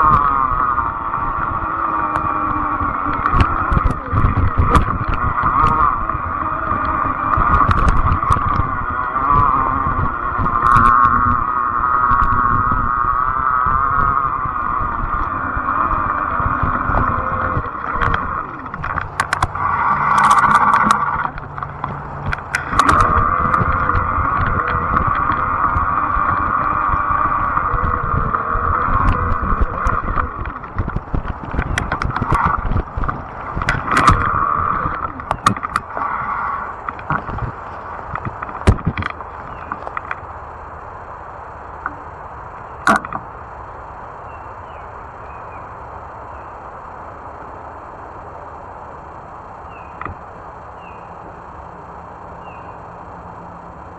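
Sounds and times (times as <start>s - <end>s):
bike clicks and rattles: 0.0s - 40.3s, 42.8s - 43.3s
e-bike drivetrain and tyres humming: 0.0s - 53.9s.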